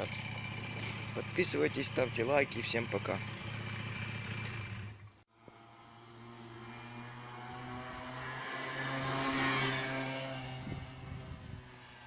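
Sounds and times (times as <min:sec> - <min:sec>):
vehicle engine driving past: 0:00.0 - 0:12.0.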